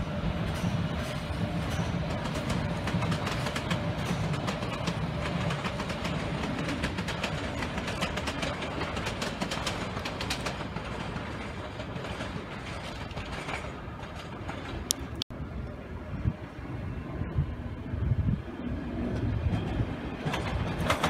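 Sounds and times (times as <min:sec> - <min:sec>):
train rumble: 0:00.0 - 0:21.0
train wheels clicking over rail: 0:00.4 - 0:15.2, 0:19.2 - 0:21.0.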